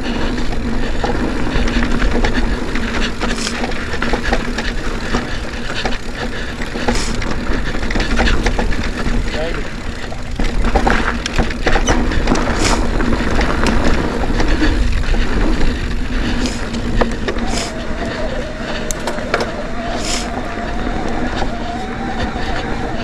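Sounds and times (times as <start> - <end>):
bike rattling and knocking: 18.9 - 19.6.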